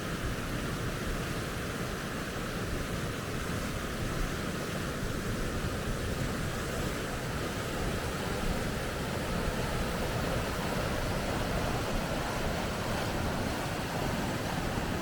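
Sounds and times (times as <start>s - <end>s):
river rapids rushing: 5.9s - 15.0s.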